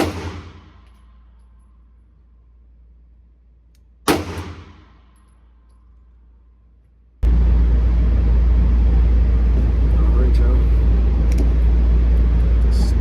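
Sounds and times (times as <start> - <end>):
handgun shot ringing indoors: 0.0 - 1.7, 4.0 - 6.0
low rumble and hiss: 0.0 - 13.0.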